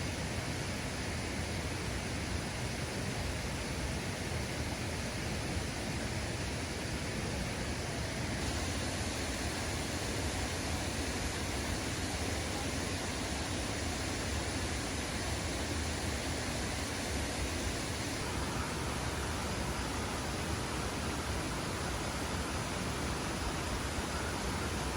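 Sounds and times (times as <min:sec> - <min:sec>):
waterfall rushing: 0:08.4 - 0:24.9.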